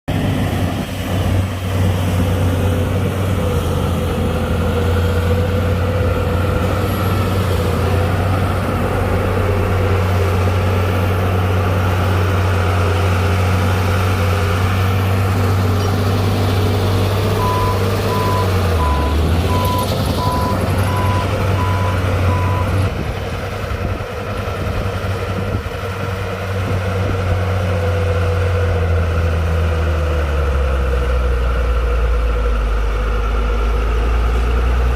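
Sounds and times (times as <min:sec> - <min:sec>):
bulldozer diesel engine under load: 0:00.0 - 0:34.9
reversing alarm beeping: 0:17.3 - 0:22.8.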